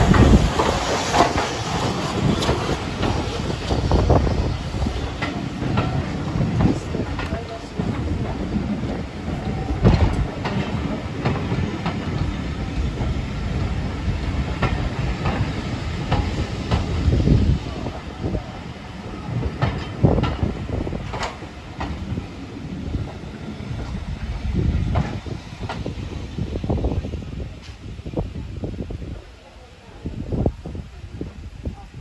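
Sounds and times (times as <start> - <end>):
train wheels clanking: 0.0 - 28.0
train rumble: 0.0 - 32.0.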